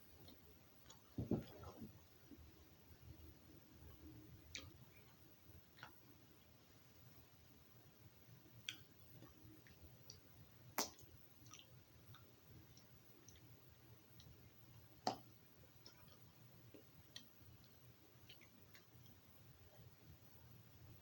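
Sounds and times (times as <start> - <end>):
mouth sounds of eating: 8.5 - 20.0.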